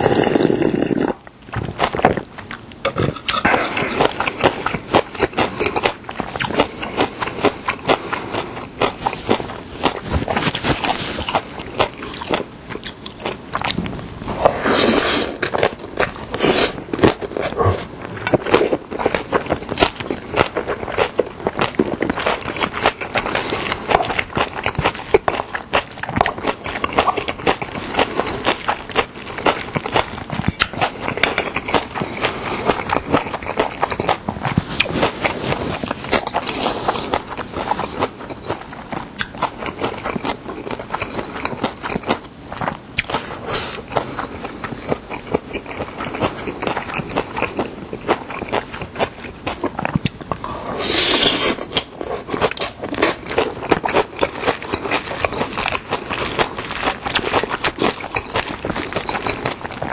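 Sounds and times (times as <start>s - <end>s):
slurping food: 14.3s - 15.7s, 50.4s - 51.7s.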